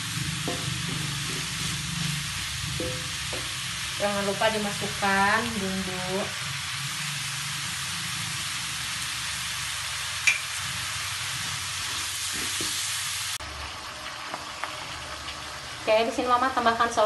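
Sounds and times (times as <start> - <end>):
mushrooms sizzling in a wok: 0.0 - 17.0.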